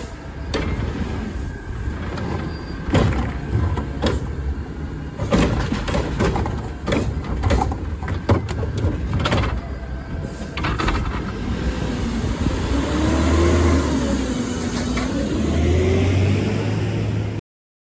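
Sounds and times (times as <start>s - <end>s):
engine whine: 0.0s - 17.4s
garbage truck engine rumble: 0.0s - 17.4s
metal clanks and knocks: 2.0s - 4.5s, 5.2s - 9.8s.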